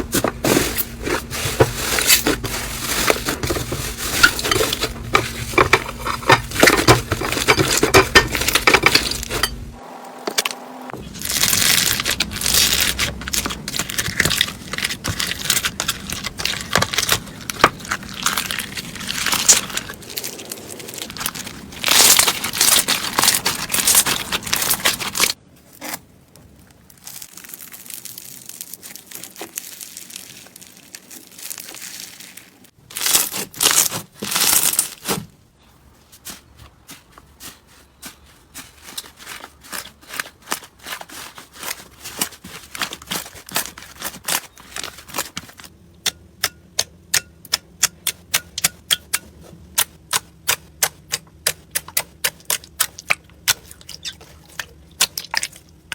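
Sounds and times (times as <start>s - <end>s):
slime squishing by hand: 11.0s - 35.2s, 35.8s - 45.7s, 47.9s - 55.9s.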